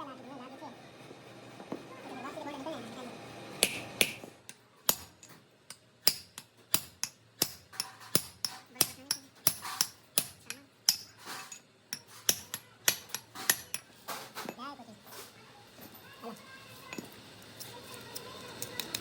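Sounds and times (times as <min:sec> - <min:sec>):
hammer striking metal: 0:03.6 - 0:13.9.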